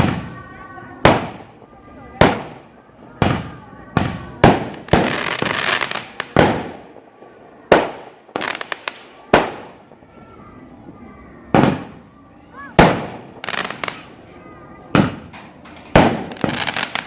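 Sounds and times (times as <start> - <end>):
fireworks pops: 0.0 - 6.9, 7.7 - 9.8, 11.5 - 12.1, 12.7 - 14.2, 14.9 - 17.0
fireworks bangs: 0.0 - 17.0
fireworks crackling: 0.0 - 17.0.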